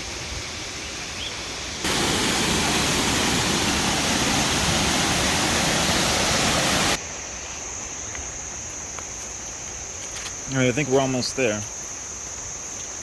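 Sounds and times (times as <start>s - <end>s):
high insect drone: 0.0s - 13.0s
quiet hiss of water: 0.0s - 13.0s
waterfall roaring: 1.8s - 7.0s.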